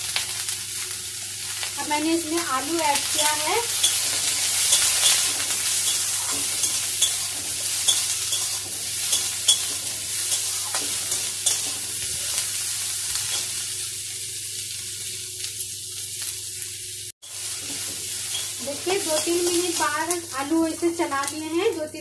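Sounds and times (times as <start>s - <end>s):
vegetables sizzling in hot oil: 0.0s - 22.0s
spatula scraping and tapping pan: 3.7s - 12.1s.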